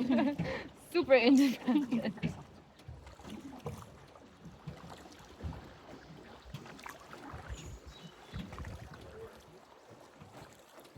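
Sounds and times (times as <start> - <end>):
oars knocking on boat: 0.0 - 0.6, 2.0 - 6.8
water sloshing: 0.0 - 10.9.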